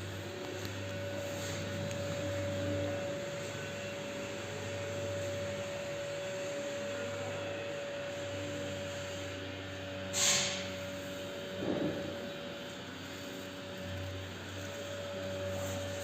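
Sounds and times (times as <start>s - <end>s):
constant whine: 0.0s - 10.0s
machine hum: 0.0s - 10.1s.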